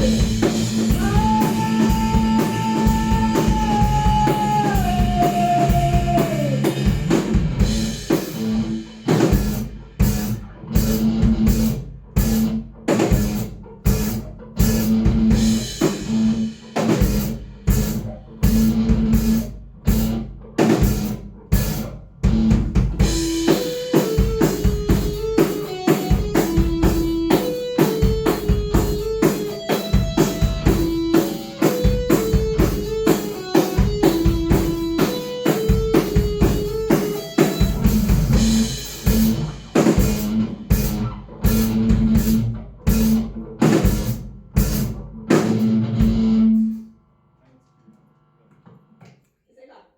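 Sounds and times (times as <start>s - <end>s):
electric guitar riff: 0.0s - 12.6s, 21.6s - 46.7s
bass guitar: 0.0s - 46.8s
drums: 0.0s - 47.0s.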